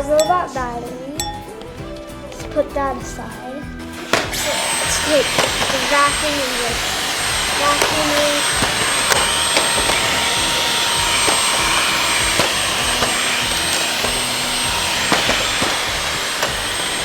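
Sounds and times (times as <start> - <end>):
stick vacuum whining: 1.2 - 17.0
small nozzle clicks: 4.1 - 17.0.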